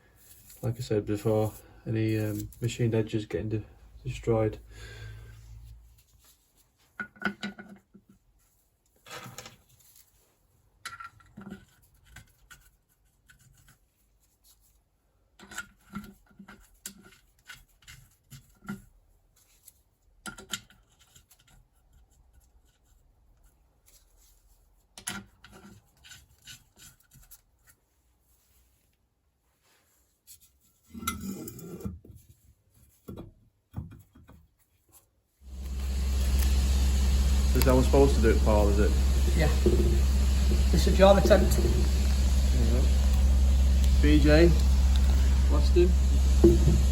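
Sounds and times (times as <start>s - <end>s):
engine covers knocking and scraping: 35.5s - 46.9s.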